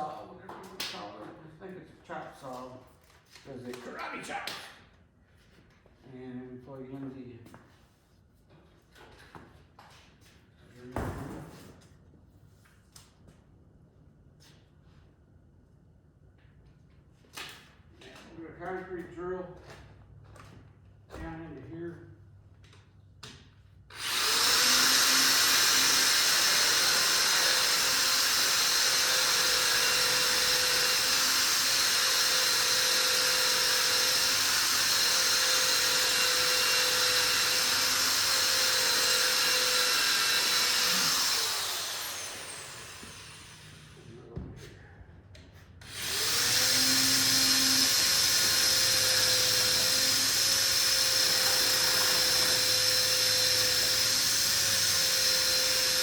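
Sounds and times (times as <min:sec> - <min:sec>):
concrete drill boring: 0:23.9 - 0:44.1, 0:45.8 - 0:56.0.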